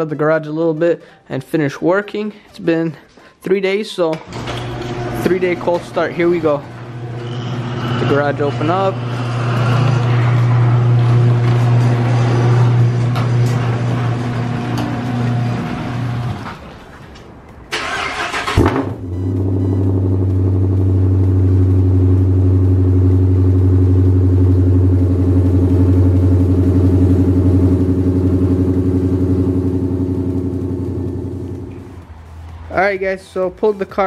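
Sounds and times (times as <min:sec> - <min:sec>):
garage door opener humming: 0:04.2 - 0:16.8
car engine cranking and idling: 0:04.3 - 0:33.5.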